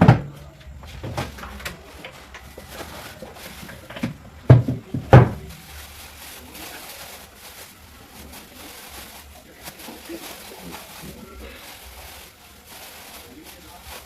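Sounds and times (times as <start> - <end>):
household items being put away: 0.0 - 5.6.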